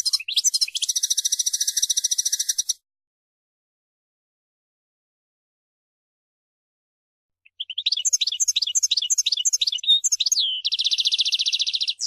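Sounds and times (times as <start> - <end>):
goldfinch singing: 0.0 - 2.8, 7.4 - 12.0.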